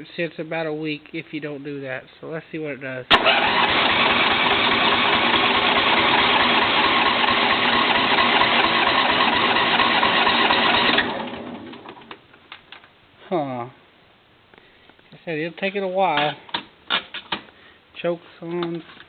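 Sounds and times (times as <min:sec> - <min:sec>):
engine cranking on starter: 0:03.1 - 0:12.2.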